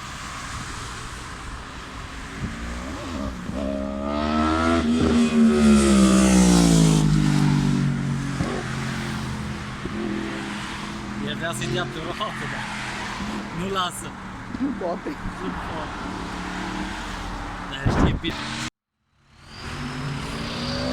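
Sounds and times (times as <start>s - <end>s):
motorcycle passing at speed: 2.2s - 13.6s.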